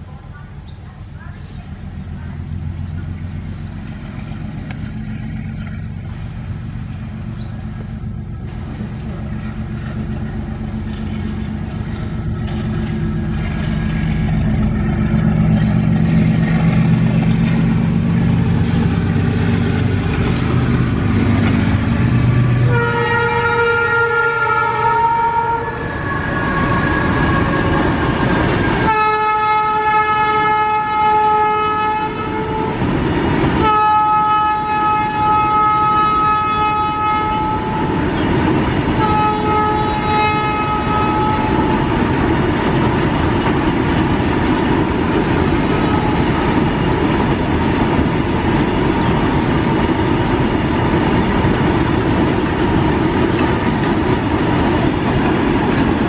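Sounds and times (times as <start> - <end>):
diesel locomotive engine humming: 0.0 - 56.0
train wheels on rails: 0.0 - 56.0
locomotive horn: 22.4 - 28.0, 28.7 - 32.8, 33.6 - 38.0, 39.0 - 41.9, 45.6 - 46.6.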